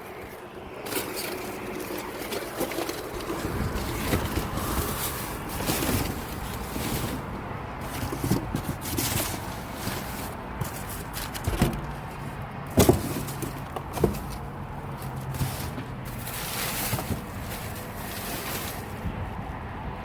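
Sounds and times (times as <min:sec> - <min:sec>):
sharp knocks and thumps: 0:05.6 - 0:19.2.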